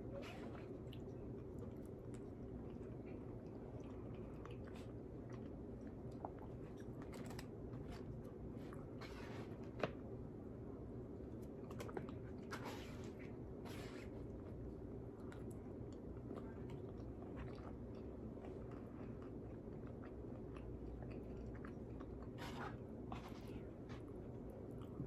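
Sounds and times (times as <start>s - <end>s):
person chewing: 0.8s - 8.9s, 15.1s - 24.2s.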